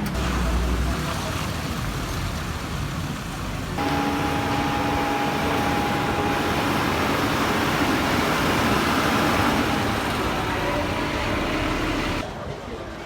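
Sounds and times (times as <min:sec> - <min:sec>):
faint steady whine: 0:03.8 - 0:12.2
machine engine running: 0:03.8 - 0:12.2.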